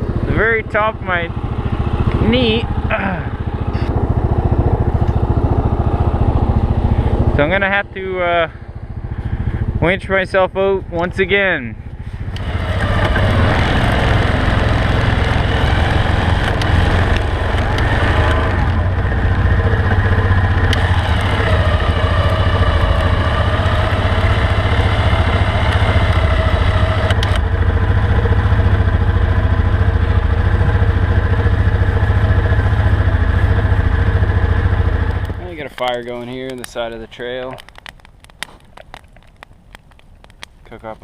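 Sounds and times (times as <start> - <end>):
engine running: 0.0 - 41.0
electric winch whining: 12.3 - 27.5.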